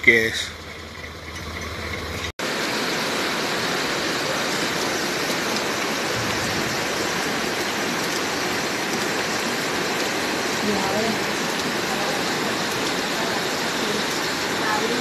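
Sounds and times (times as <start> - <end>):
low engine hum: 0.0 - 7.6
heavy rain pouring: 2.0 - 15.0.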